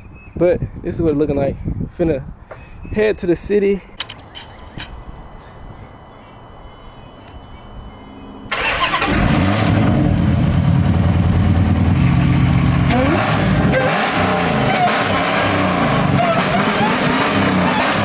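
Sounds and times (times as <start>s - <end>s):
loud car engine revving: 8.5s - 18.0s.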